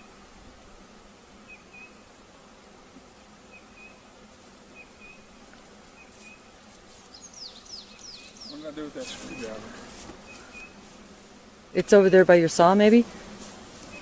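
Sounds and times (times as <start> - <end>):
bees humming: 0.0 - 14.0
bird chirping: 7.1 - 9.6, 10.2 - 10.8.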